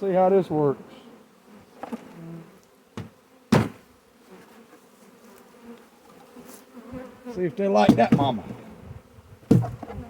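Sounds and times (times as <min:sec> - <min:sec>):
honey bees buzzing: 0:00.0 - 0:10.0
sharp knocks: 0:03.0 - 0:03.8, 0:07.8 - 0:08.6, 0:09.5 - 0:10.0.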